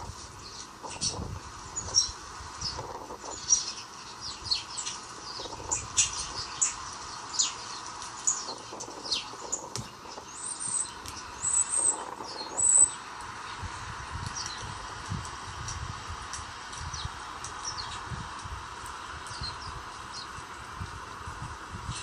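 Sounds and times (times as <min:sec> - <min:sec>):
small birds chirping: 0:00.0 - 0:15.8, 0:16.4 - 0:22.0
high twittering bird calls: 0:00.4 - 0:13.6.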